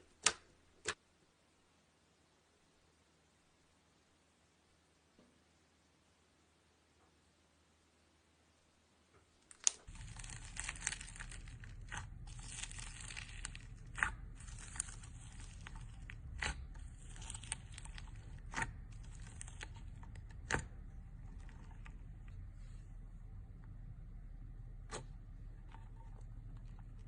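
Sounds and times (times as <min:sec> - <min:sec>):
slime popping: 0:09.5 - 0:22.2
slime crackling: 0:09.5 - 0:22.7.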